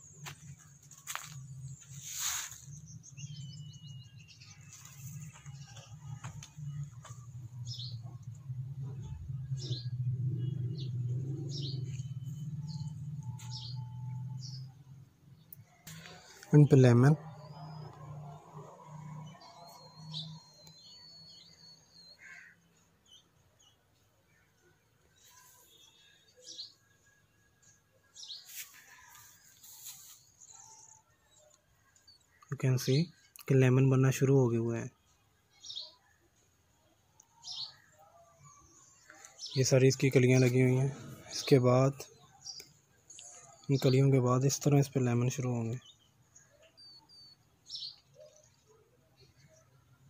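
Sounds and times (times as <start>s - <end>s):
small birds chirping: 0.0s - 50.0s
rustling noise: 0.2s - 2.9s, 28.4s - 30.5s.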